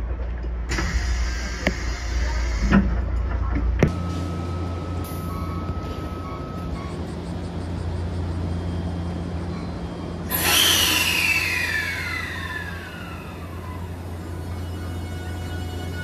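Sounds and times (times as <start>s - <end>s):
rail noise rush: 0.0s - 16.0s
train hum: 0.0s - 16.0s
whining tones sliding down: 10.2s - 16.0s.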